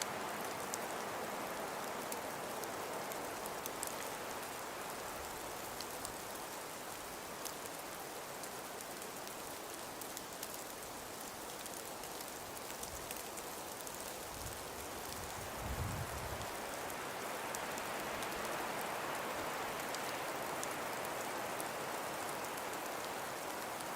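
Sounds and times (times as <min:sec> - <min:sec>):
snow grains ticking on a surface: 0:00.0 - 0:23.9
wind-driven snow hissing: 0:14.2 - 0:16.7
low gust of wind: 0:15.3 - 0:16.6.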